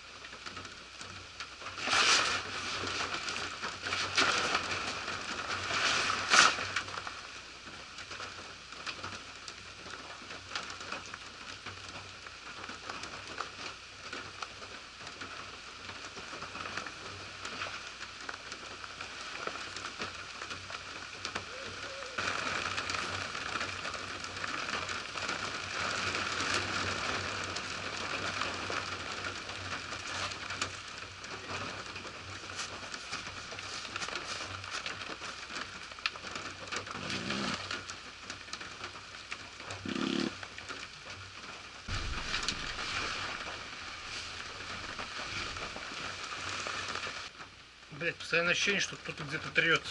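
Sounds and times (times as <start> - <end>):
rain falling: 0.0 - 49.9
raindrops ticking: 6.7 - 49.9.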